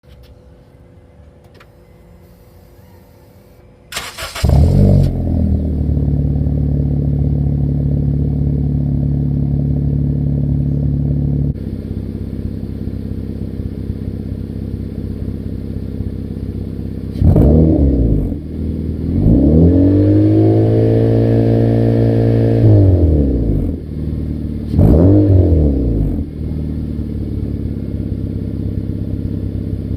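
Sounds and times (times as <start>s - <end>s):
car engine starting and idling: 3.5s - 29.9s
engine revving: 4.0s - 11.6s, 17.1s - 27.6s.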